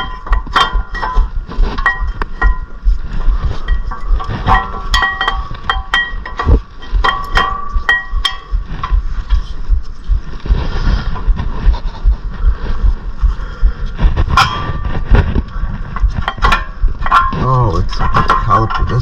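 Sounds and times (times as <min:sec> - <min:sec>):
scraping and handling noise: 0:00.0 - 0:19.0
metal tools clinking: 0:03.6 - 0:08.6.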